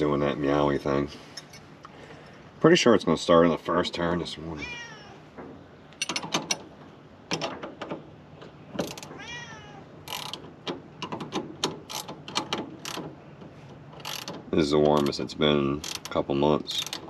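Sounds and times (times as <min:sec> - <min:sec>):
cat meowing: 0:04.6 - 0:05.2, 0:09.1 - 0:09.9
handling clicks and knocks: 0:05.3 - 0:09.2, 0:10.1 - 0:17.0.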